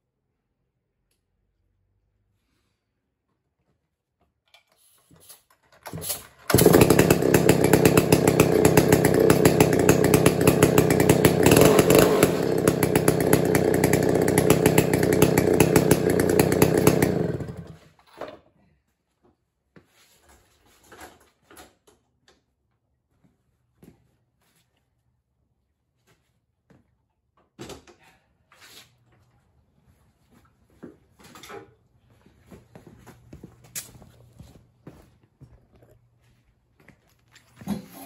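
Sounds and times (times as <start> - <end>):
chainsaw engine running: 6.4 - 17.8.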